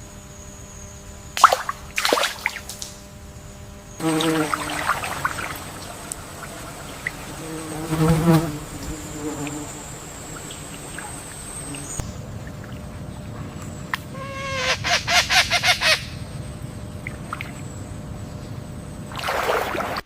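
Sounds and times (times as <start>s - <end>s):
high-pitched insect whine: 0.0s - 19.4s
fly buzzing: 2.0s - 12.1s, 14.1s - 14.9s.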